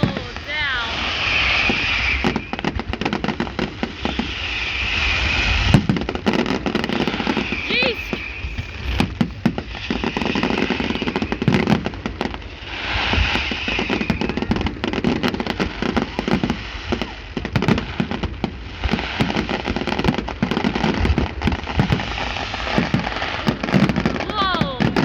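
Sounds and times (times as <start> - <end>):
fireworks cracking and popping: 0.0 - 25.0.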